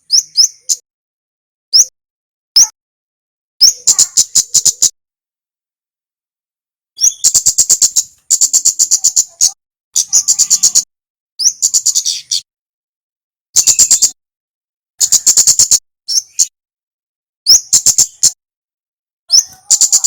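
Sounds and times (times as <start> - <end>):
songbird whistle and chatter: 0.0 - 0.8, 1.7 - 1.9, 2.6 - 2.8, 3.6 - 5.0, 7.0 - 12.5, 13.6 - 14.2, 15.0 - 16.6, 17.5 - 18.4, 19.3 - 20.0.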